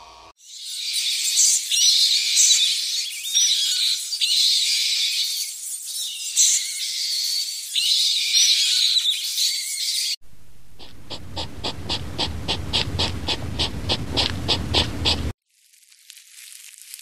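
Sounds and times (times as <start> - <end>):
flying foxes chattering and squealing: 10.7 - 15.3.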